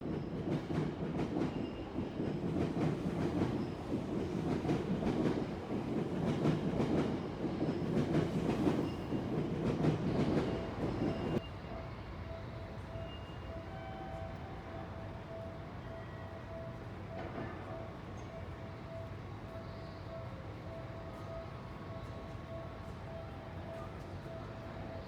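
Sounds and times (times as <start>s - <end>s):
level crossing warning bell: 10.4s - 25.0s.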